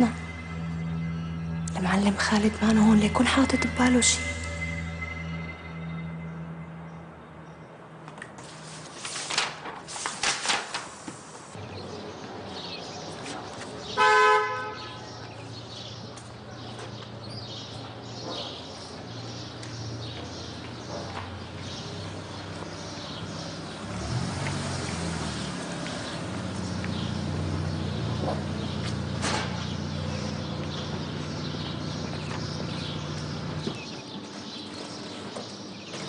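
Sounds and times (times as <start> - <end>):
engine humming: 0.0 - 8.6, 15.0 - 36.0
small birds chirping: 11.6 - 14.0, 14.8 - 36.0.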